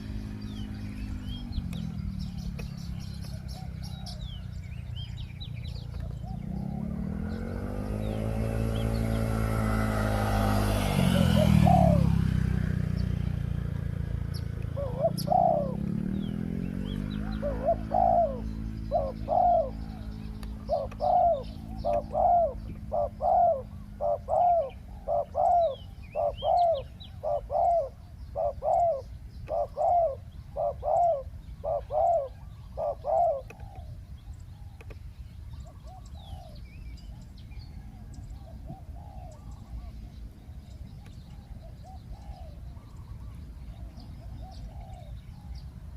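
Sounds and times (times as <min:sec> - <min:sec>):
passing vehicle engine: 0:00.0 - 0:34.4
doves cooing: 0:00.0 - 0:45.9
small birds chirping: 0:00.0 - 0:45.9.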